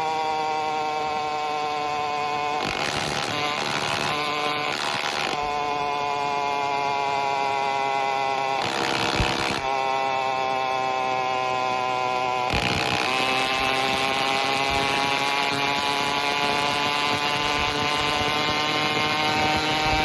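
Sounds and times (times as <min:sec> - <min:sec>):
two-stroke engine running: 0:02.6 - 0:09.8, 0:11.8 - 0:20.0.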